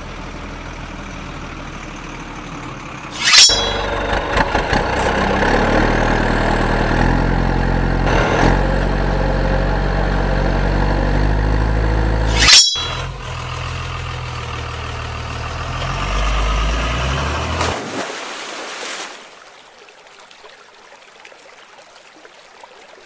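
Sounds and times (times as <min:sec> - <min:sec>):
heavy truck engine running: 0:00.0 - 0:03.1, 0:03.8 - 0:12.3, 0:13.0 - 0:17.6.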